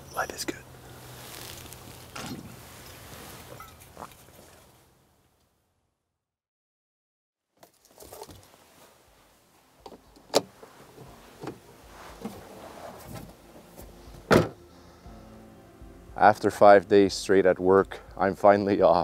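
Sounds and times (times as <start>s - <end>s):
rustling handling noise: 1.0s - 4.8s, 7.6s - 14.3s.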